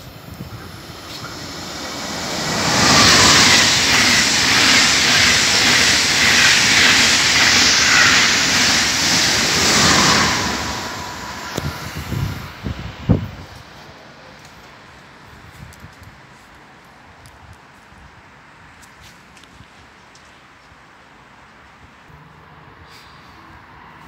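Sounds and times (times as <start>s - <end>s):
high-speed train rushing past: 0.0s - 14.5s.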